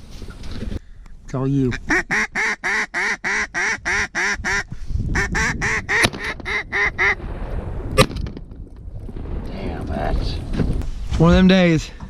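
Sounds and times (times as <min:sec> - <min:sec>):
duck call quacks: 0:01.8 - 0:04.6.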